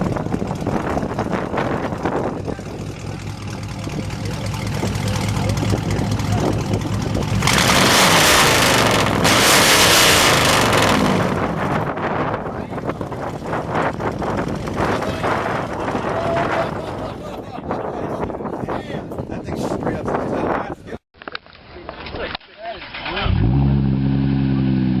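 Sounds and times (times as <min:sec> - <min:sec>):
car engine idling: 0:00.0 - 0:16.2.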